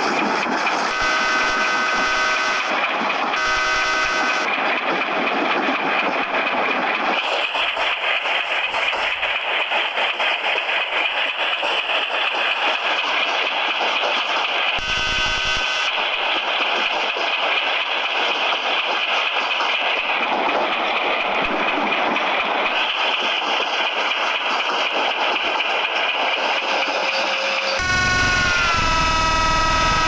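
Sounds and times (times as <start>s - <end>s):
train wheels rumbling on rails: 0.0s - 30.0s
multi-tone horn: 0.9s - 2.7s, 3.4s - 4.5s, 14.8s - 15.9s, 27.8s - 30.0s.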